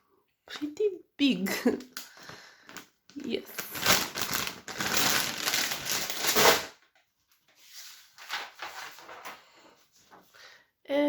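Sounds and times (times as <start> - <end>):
packaging crinkling and rustling: 2.0 - 9.4.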